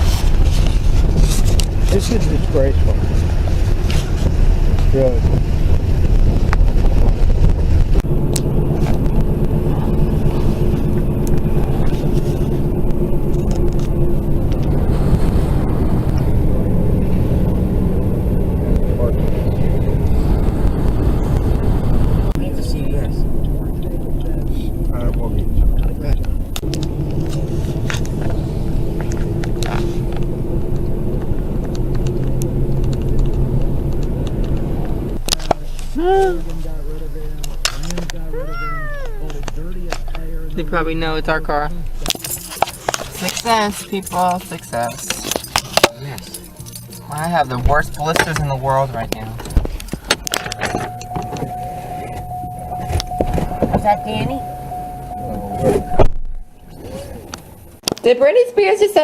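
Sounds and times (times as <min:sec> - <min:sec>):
low rumble: 0:00.0 - 0:45.6, 0:46.3 - 0:57.8
car engine running: 0:00.0 - 0:59.0.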